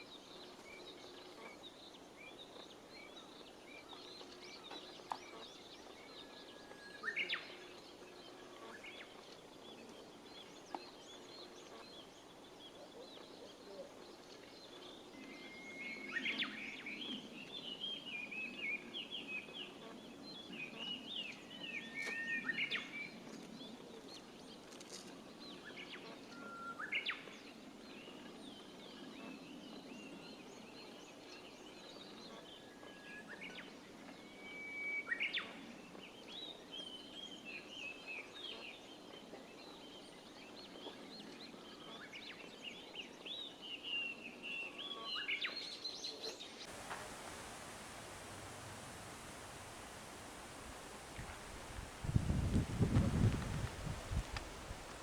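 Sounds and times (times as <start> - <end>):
bush warbler song: 46.7 - 55.0
small birds chirping: 46.7 - 55.0
steady hiss: 46.7 - 55.0.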